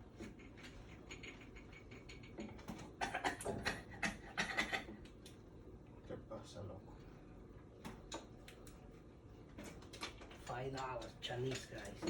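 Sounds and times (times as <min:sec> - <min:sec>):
small clicks and rattles: 0:00.2 - 0:03.4, 0:09.6 - 0:12.0.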